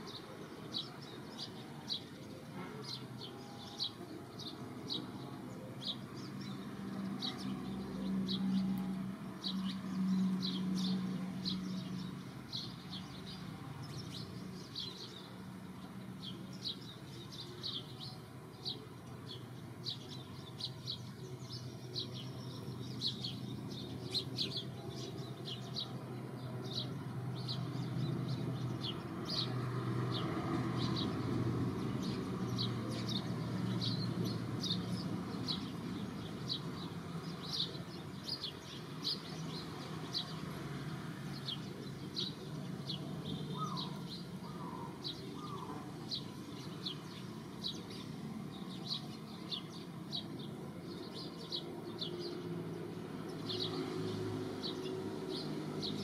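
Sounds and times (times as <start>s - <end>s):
small birds chirping: 0.0s - 56.0s
lower bird calls: 41.5s - 47.9s.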